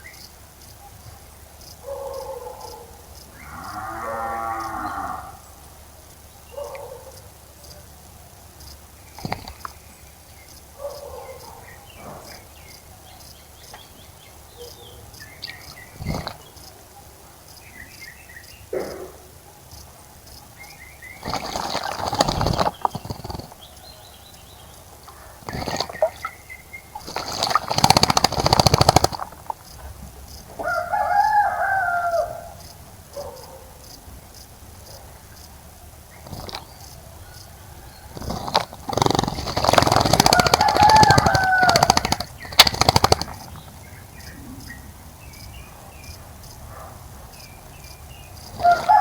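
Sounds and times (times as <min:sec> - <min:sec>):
rooster crowing: 0:03.4 - 0:05.4, 0:30.6 - 0:32.6, 0:40.1 - 0:42.3, 0:48.6 - 0:49.0
bird chirps: 0:08.6 - 0:30.9, 0:36.1 - 0:46.6
birds splashing in water: 0:09.1 - 0:10.7, 0:13.9 - 0:16.9, 0:20.5 - 0:32.0, 0:36.2 - 0:44.2, 0:48.3 - 0:49.0.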